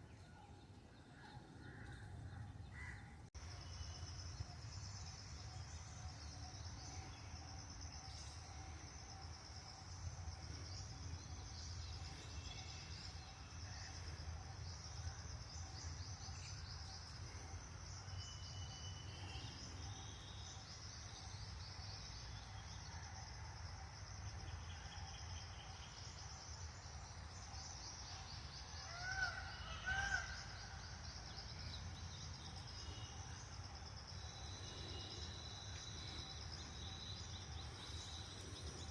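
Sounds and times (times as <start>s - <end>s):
crickets buzzing: 3.4s - 38.9s
loud bird calls: 27.7s - 38.9s.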